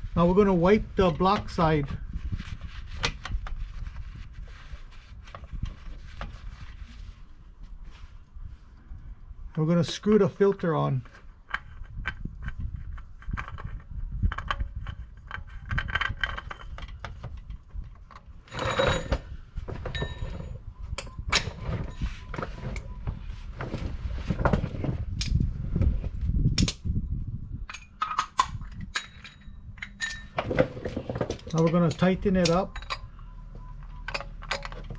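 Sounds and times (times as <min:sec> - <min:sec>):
oil filter clicking and rubbing: 0:11.1 - 0:18.2.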